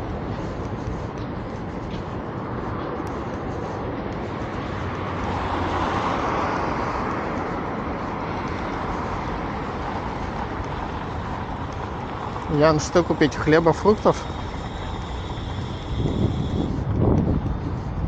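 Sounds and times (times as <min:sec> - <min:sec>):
steady road hum: 0:00.0 - 0:18.0
vehicle passing by: 0:04.5 - 0:18.0.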